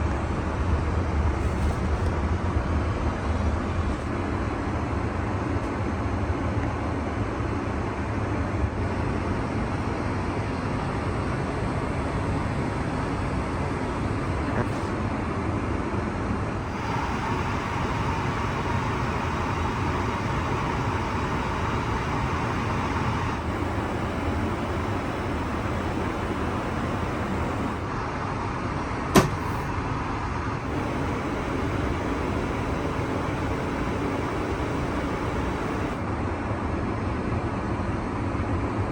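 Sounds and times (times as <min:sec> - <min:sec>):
airliner cabin rumble: 0:10.5 - 0:15.0, 0:16.6 - 0:27.9, 0:29.1 - 0:29.8, 0:30.6 - 0:36.0
sharp click: 0:29.1 - 0:29.7.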